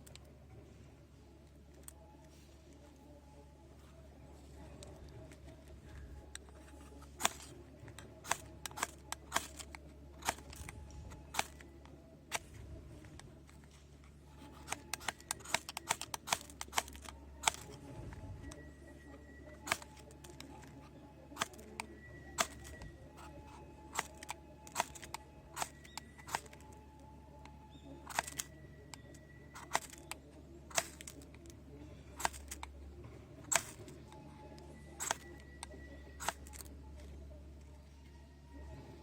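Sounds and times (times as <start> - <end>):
faint steady low hum: 0.0 - 39.0
sharp clicks and snaps: 27.4 - 31.6.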